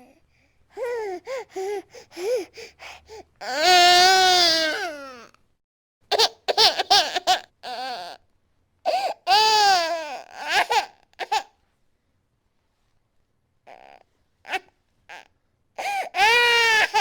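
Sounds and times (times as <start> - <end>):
baby crying and sobbing: 0.8 - 5.3, 8.9 - 11.5, 13.7 - 17.0.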